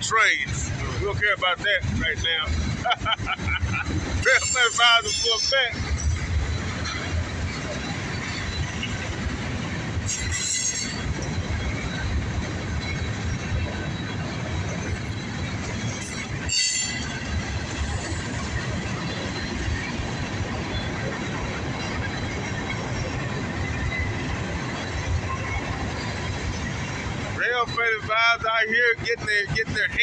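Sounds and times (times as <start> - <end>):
freight train wheel and rail rumble: 0.0 - 30.0
high-pitched wheel squeals: 4.1 - 9.2, 10.0 - 12.2, 12.8 - 19.6.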